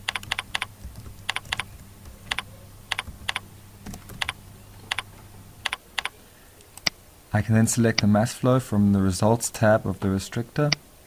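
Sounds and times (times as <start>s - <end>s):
keyboard and mouse clicks: 0.0s - 7.0s
faint low hum: 0.0s - 11.0s.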